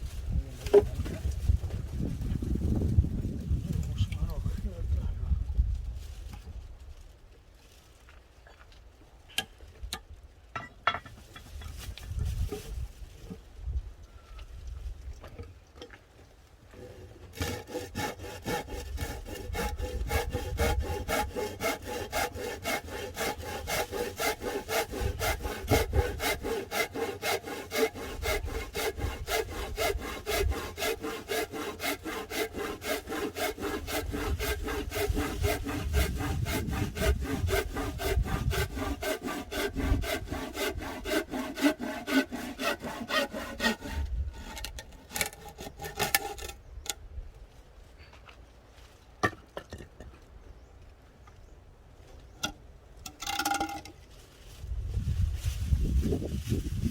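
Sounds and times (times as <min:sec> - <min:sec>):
hand saw cutting wood: 0:16.7 - 0:46.6.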